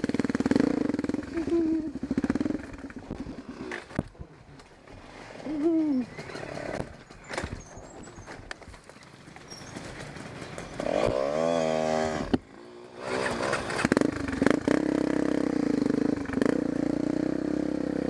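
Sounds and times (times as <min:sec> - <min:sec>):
dirt bike engine revving: 0:00.0 - 0:04.0, 0:10.6 - 0:18.0
dirt bike engine running: 0:00.0 - 0:04.3, 0:09.2 - 0:18.0.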